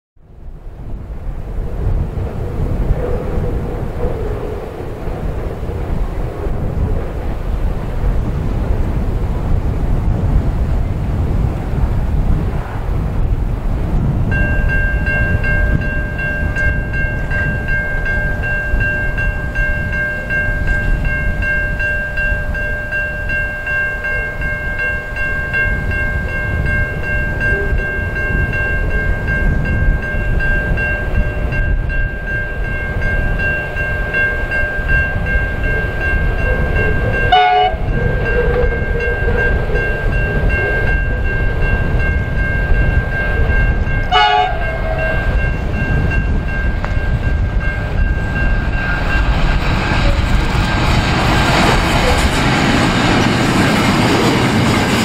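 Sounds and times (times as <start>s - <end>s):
wind rumble on microphone: 0.2s - 55.0s
diesel locomotives running: 0.4s - 55.0s
high-pitched ringing tones: 14.3s - 49.3s.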